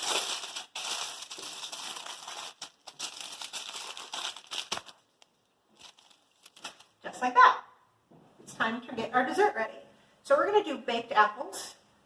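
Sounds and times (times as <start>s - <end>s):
aluminium foil crinkling: 0.0s - 7.0s.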